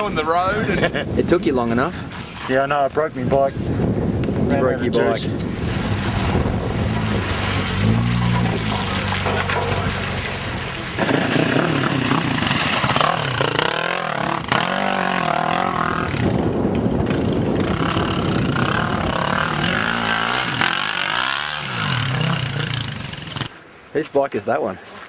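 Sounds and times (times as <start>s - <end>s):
dirt bike engine revving: 5.4s - 23.5s.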